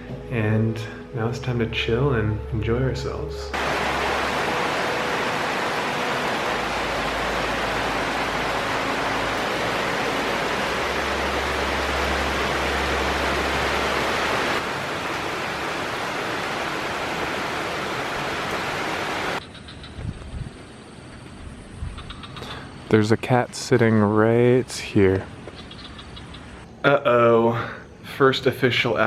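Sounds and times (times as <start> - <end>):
falling water hissing: 3.6 - 19.4.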